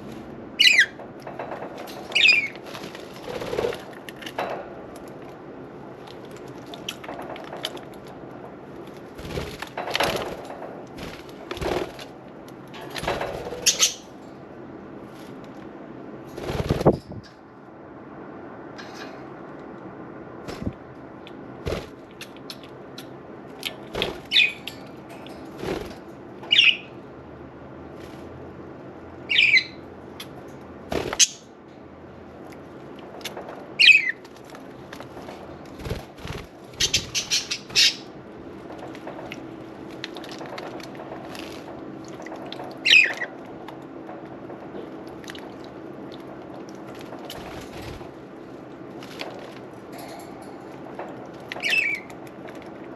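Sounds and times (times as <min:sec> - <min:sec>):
wings fluttering: 0:00.0 - 0:05.4, 0:06.0 - 0:14.1, 0:16.2 - 0:17.3, 0:23.6 - 0:26.7, 0:30.9 - 0:31.4, 0:33.1 - 0:52.9.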